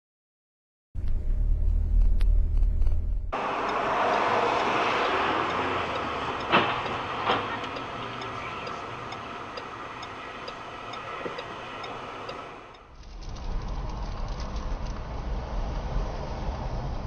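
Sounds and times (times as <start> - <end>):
vehicle running noise: 1.0 - 17.0
faint regular ticking: 3.6 - 12.9.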